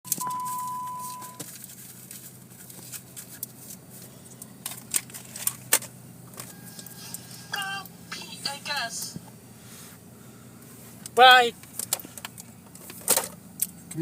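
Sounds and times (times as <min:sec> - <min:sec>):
short steady beep: 0:00.1 - 0:01.4.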